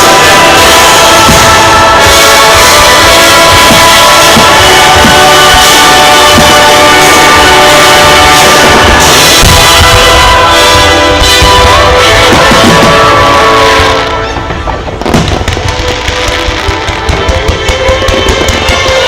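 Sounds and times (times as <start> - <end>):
show music over loudspeakers: 0.0 - 14.2
fireworks bursting and crackling: 0.0 - 19.0.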